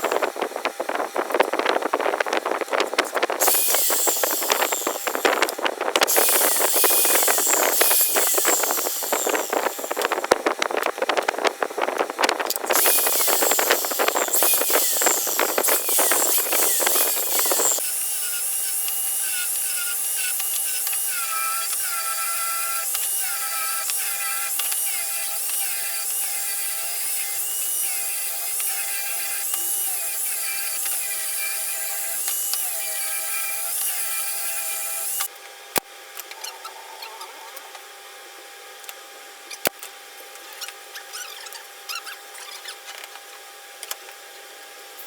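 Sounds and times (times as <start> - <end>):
small power tool whine: 0.0 - 45.0
tool rasping wood: 3.3 - 10.4, 12.6 - 35.3.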